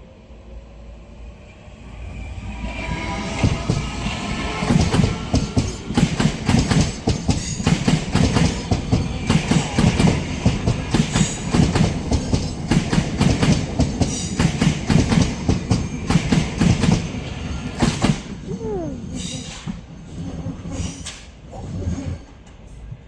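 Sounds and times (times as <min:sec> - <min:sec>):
train wheel squeal: 0:01.3 - 0:12.6, 0:19.0 - 0:22.8
train wheels clattering: 0:03.3 - 0:18.4.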